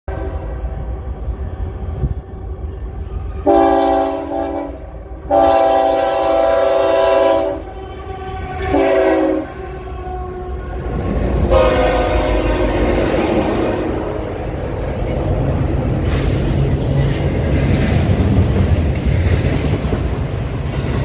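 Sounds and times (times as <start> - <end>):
passing train rumbling: 0.1 - 21.0
locomotive air horn: 3.4 - 14.2.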